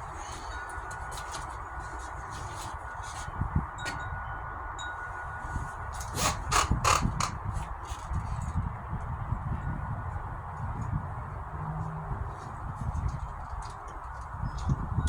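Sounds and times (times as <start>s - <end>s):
wind rumble on microphone: 0.0s - 15.0s
wind chime ringing: 3.8s - 5.8s.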